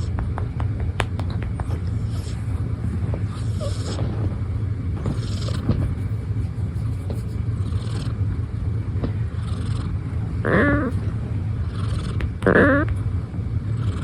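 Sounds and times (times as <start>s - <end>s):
steady low rumble: 0.0s - 14.0s
cat meowing: 10.5s - 11.0s, 12.4s - 12.9s.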